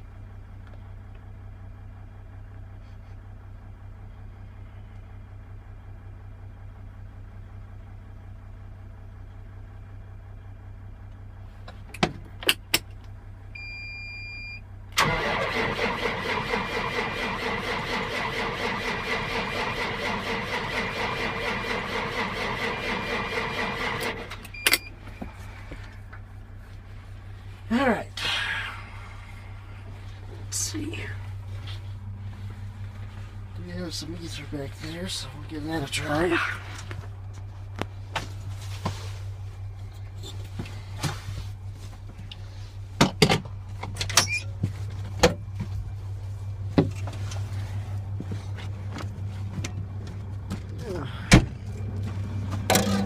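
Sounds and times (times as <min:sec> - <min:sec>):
diesel engine cranking on starter: 0:14.9 - 0:26.1, 0:46.0 - 0:53.0
steady low hum: 0:21.3 - 0:53.0.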